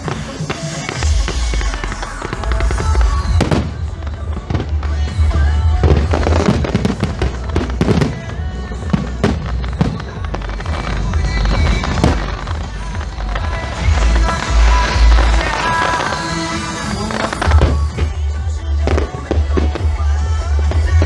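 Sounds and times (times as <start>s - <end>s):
fireworks bangs and crackles: 0.0s - 21.0s
steady low rumble: 1.0s - 15.8s.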